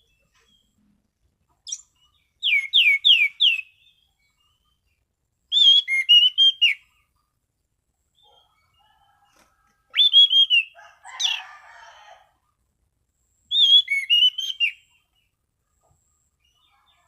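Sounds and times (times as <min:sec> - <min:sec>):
thrush singing whistled notes: 0:01.6 - 0:04.8, 0:05.5 - 0:06.9, 0:09.9 - 0:11.4, 0:13.5 - 0:15.0.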